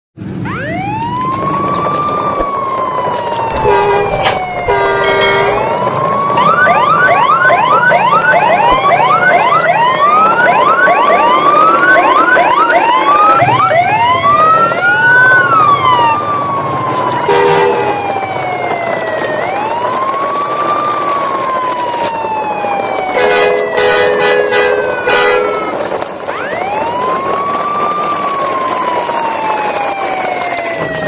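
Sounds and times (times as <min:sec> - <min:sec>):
sirens wailing: 0:00.2 - 0:31.0
fast yelping siren: 0:00.4 - 0:31.0
horn blasts: 0:03.5 - 0:06.0, 0:17.2 - 0:18.0, 0:23.2 - 0:25.8.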